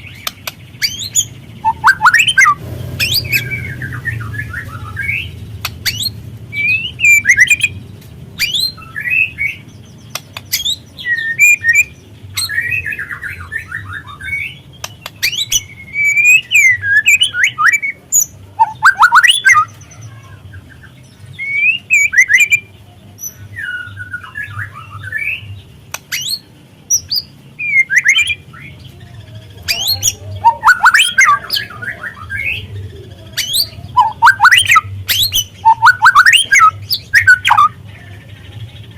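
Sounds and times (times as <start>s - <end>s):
bird chirping and clicking: 0.0s - 3.7s, 5.5s - 8.8s, 10.0s - 12.6s, 14.7s - 19.7s, 25.9s - 28.4s, 29.7s - 31.5s, 33.4s - 37.7s.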